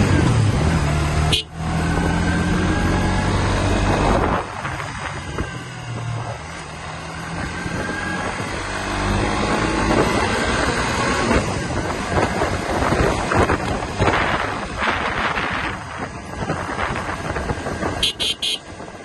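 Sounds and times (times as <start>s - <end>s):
wind noise on microphone: 1.8s - 6.5s, 7.2s - 19.0s
motorcycle engine running: 11.5s - 19.0s.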